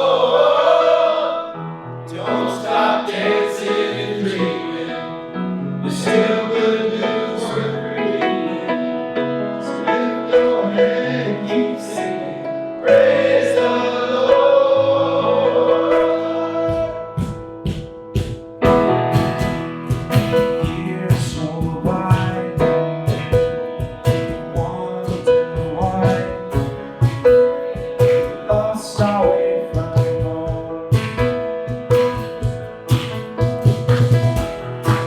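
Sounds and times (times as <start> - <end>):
worship band and singing: 0.0 - 9.0, 9.6 - 35.0
steady drum beat: 16.7 - 35.0.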